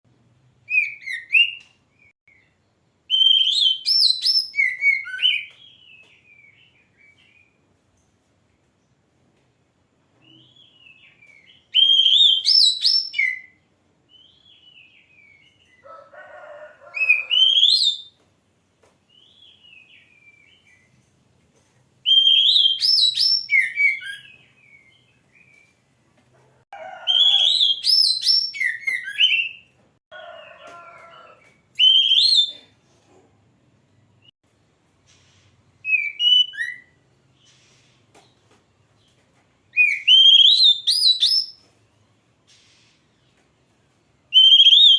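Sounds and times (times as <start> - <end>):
songbird warbling whistled phrases: 3.1 - 5.8, 11.7 - 13.5, 27.1 - 29.6, 31.8 - 32.6, 44.3 - 44.9
soft bird chirps: 35.0 - 43.5.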